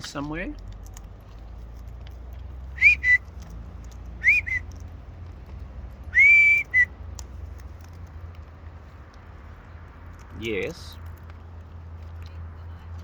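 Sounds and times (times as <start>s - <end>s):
person whistling to call birds: 2.8s - 3.3s, 4.2s - 4.7s, 6.1s - 6.9s.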